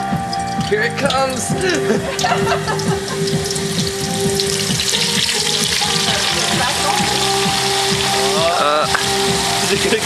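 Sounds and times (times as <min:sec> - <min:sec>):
hot oil bubbling and sizzling: 0:00.0 - 0:10.0.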